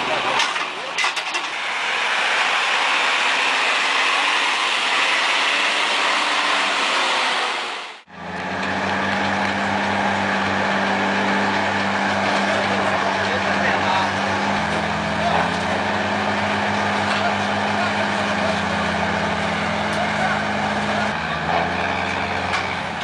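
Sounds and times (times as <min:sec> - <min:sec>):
steady engine rush: 0:00.0 - 0:23.0
truck engine humming: 0:01.5 - 0:23.0.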